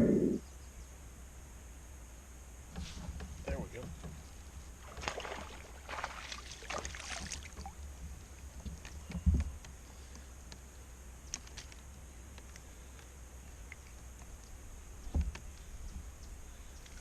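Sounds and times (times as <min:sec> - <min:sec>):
water splashing against kayak: 0:02.7 - 0:10.1.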